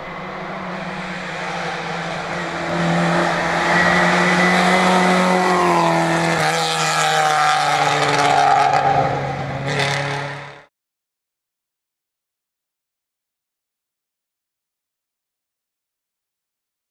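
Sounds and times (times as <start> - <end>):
rally car engine at high revs: 0.0 - 10.7.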